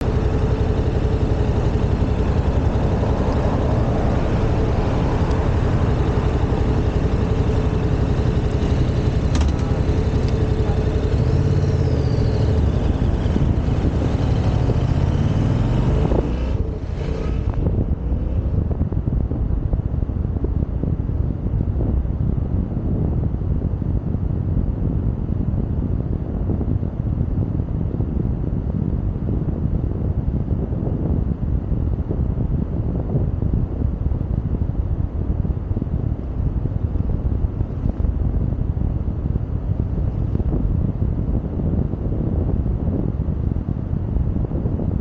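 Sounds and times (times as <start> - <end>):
motorcycle engine running: 0.0 - 26.8, 28.2 - 45.0
wind rumble on microphone: 0.0 - 45.0.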